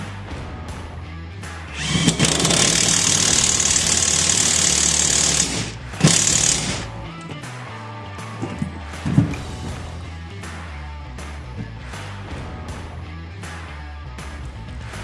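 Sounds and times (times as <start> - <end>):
background music with beat: 0.0 - 3.1, 5.2 - 15.0
tool running with loud hiss: 1.8 - 6.9.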